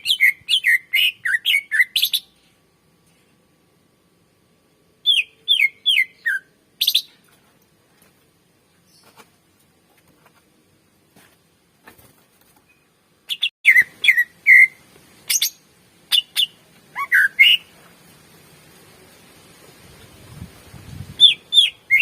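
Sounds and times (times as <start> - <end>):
bird chirping and whistling: 0.0 - 2.3, 5.0 - 7.1, 13.3 - 17.7, 21.2 - 22.0.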